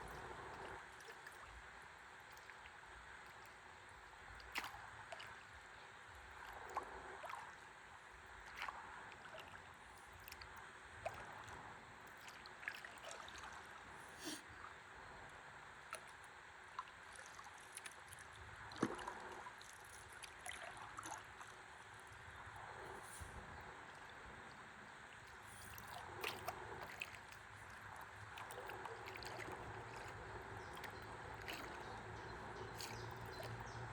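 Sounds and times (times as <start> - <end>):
small splashes and drips: 0.0 - 14.4, 15.8 - 22.3, 25.0 - 33.9
river water lapping and gurgling: 0.0 - 33.9.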